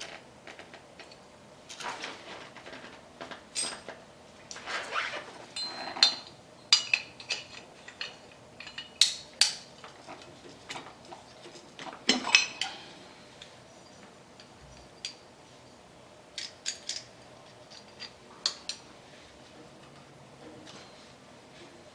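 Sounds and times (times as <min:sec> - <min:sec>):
metal parts clinking: 0:01.0 - 0:04.0, 0:04.6 - 0:09.7, 0:16.4 - 0:18.7.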